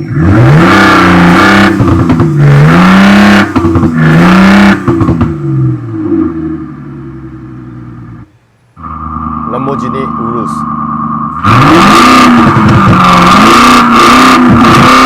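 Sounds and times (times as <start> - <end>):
exhaust pops: 0.0 - 6.4, 10.7 - 15.0
simulated engine revving: 0.0 - 6.7, 8.8 - 15.0.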